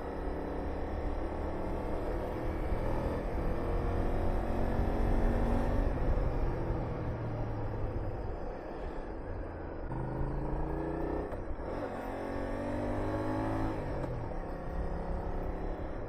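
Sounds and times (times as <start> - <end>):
motorcycle engine accelerating: 0.1 - 8.2, 9.8 - 16.0.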